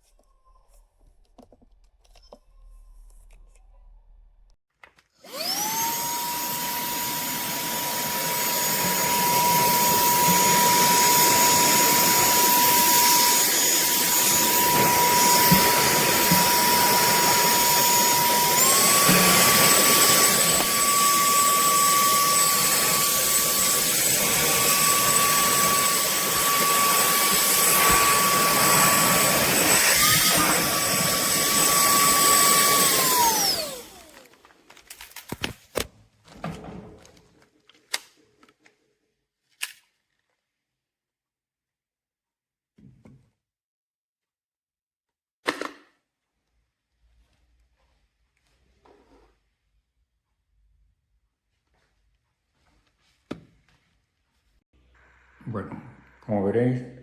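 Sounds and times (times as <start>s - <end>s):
handheld vacuum cleaner whining: 5.2s - 34.6s.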